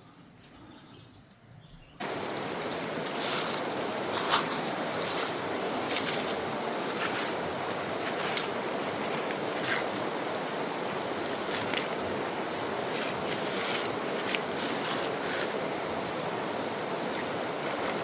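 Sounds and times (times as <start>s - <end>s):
river flowing: 2.0s - 18.0s.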